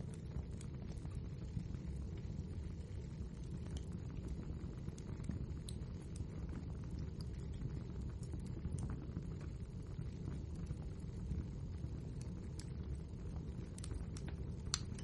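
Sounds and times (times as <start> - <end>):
logs crackling and popping: 0.0 - 15.0
wood fire burning: 0.0 - 15.0.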